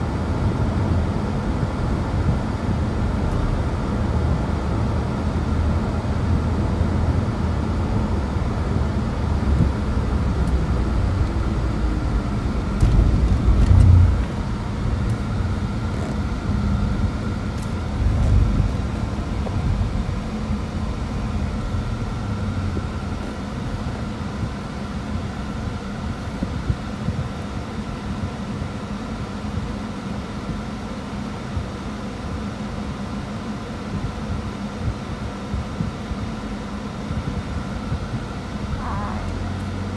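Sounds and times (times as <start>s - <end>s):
car road and engine rumble: 0.0s - 39.9s
low bumps: 12.4s - 23.9s.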